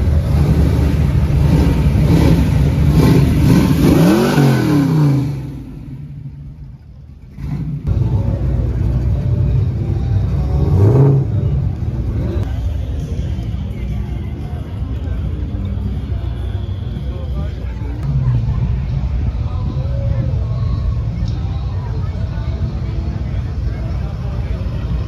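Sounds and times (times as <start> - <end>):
car engine rumbling and revving: 0.0 - 25.0.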